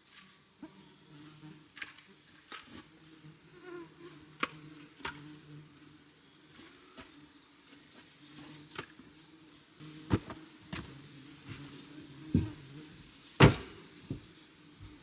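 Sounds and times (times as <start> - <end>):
fly buzzing: 8.3 - 15.0.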